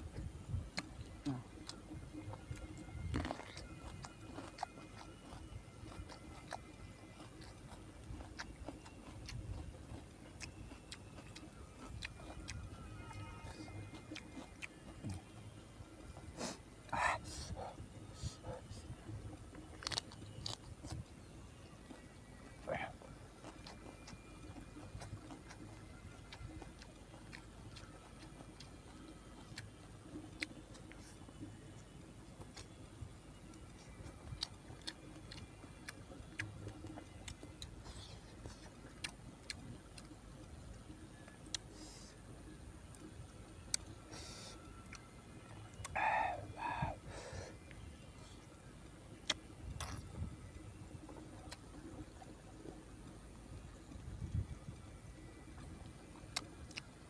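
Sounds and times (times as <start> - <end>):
person chewing food: 0.1 - 54.0, 54.8 - 57.0
mouth clicks and lip smacks: 49.2 - 50.1.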